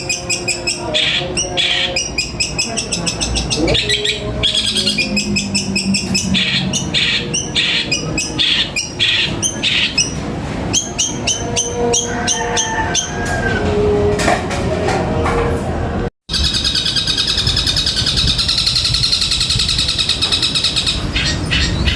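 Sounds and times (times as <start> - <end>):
harsh buzzy bird notes: 0.0 - 13.7
songbirds chipping and trilling: 0.0 - 14.0, 16.3 - 21.9.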